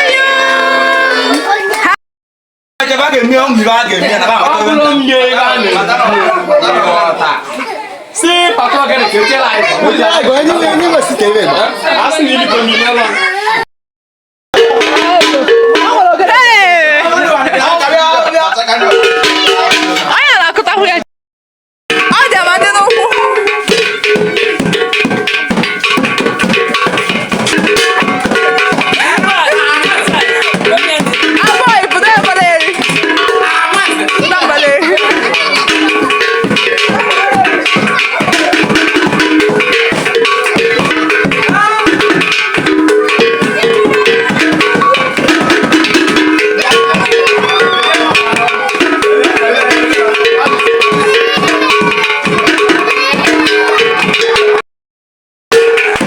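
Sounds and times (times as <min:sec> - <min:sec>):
fast hand drums: 0:00.0 - 0:02.0, 0:02.8 - 0:13.6, 0:14.6 - 0:21.0, 0:21.9 - 0:54.6, 0:55.5 - 0:56.0
wood block strikes: 0:14.6 - 0:20.4, 0:21.9 - 0:54.6, 0:55.5 - 0:56.0.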